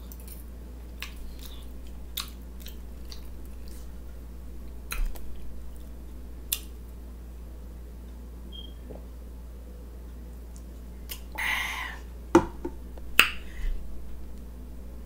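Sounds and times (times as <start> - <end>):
person chewing with wet smacks: 0.0 - 7.0, 10.2 - 11.4
steady low hum: 0.0 - 15.0.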